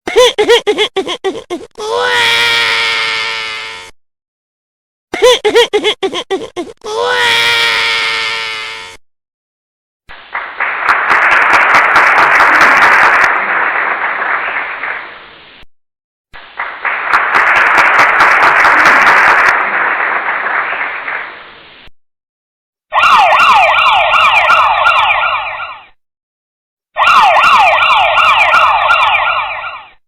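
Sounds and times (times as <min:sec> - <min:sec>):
crowd clapping: 0:10.1 - 0:15.4, 0:16.4 - 0:21.7.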